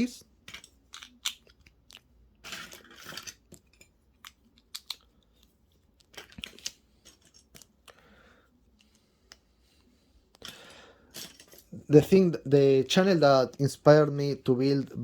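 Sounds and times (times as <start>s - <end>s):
plastic bricks clicking: 0.5s - 5.1s
plastic pieces rustling: 0.5s - 5.1s, 6.0s - 7.7s, 10.4s - 11.7s.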